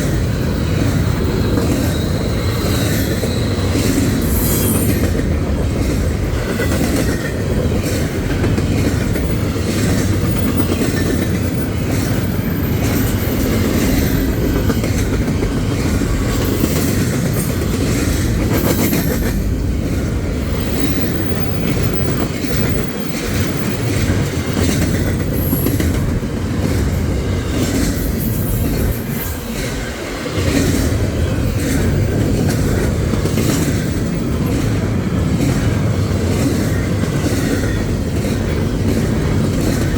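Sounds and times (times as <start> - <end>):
train wheels clattering: 0.0 - 39.9
high wheel squeals: 1.0 - 5.0.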